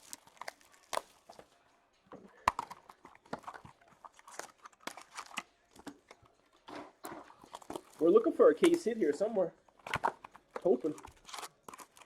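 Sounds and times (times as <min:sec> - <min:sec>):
cards clicking and rustling: 0:02.4 - 0:12.0.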